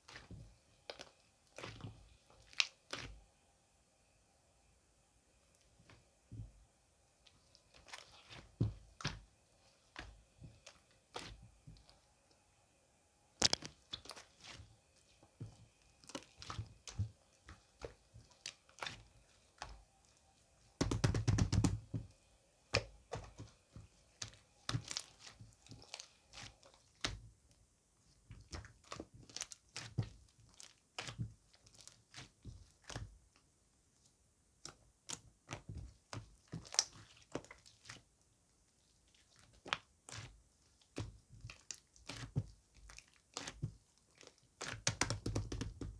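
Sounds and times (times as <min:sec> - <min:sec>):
small clicks and knocks: 0:13.4 - 0:13.8.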